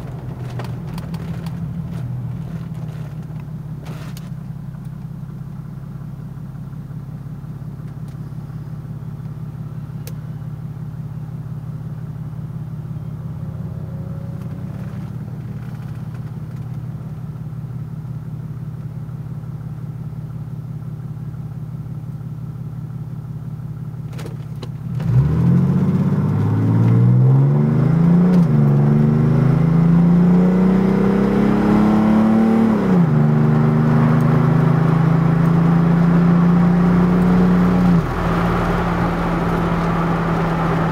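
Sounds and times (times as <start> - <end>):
diesel engine revving: 13.0 - 16.3, 24.8 - 40.9.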